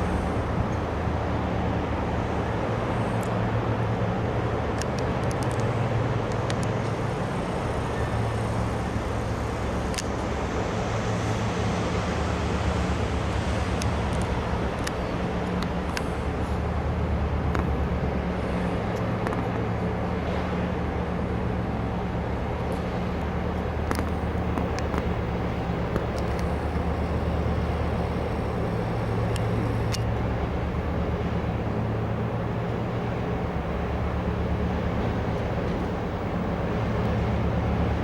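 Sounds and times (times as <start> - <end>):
outdoor background noise: 0.0 - 38.0
ship engine drone: 0.0 - 38.0
faint clicks: 22.7 - 28.0, 28.7 - 30.2.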